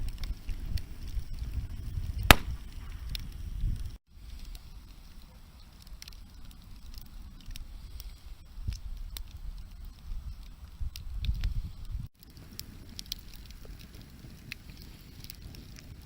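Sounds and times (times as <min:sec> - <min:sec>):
wood fire crackling: 0:00.0 - 0:16.0
loud sharp snap: 0:02.3 - 0:03.2.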